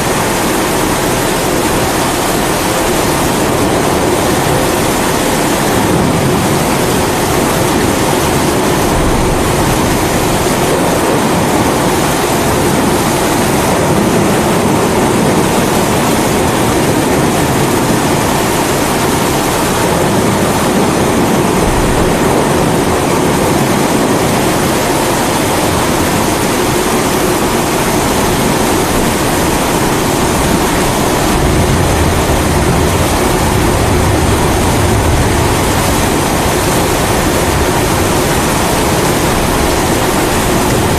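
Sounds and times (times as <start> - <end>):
steady rain: 0.0 - 40.9
thunder rumble: 0.0 - 40.9.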